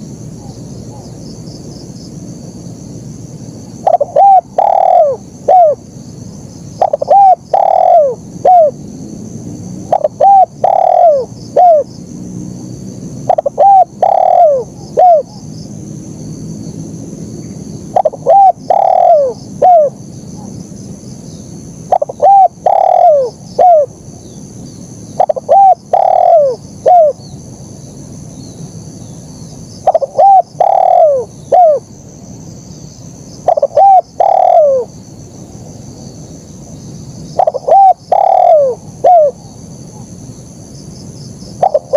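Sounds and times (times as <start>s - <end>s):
high-pitched insect drone: 0.0s - 41.9s
dove cooing: 3.8s - 5.8s, 6.8s - 8.8s, 9.9s - 11.9s, 13.3s - 15.5s, 17.9s - 20.5s, 21.9s - 24.0s, 25.2s - 27.2s, 29.8s - 31.9s, 33.4s - 34.9s, 37.4s - 40.1s, 41.6s - 41.9s.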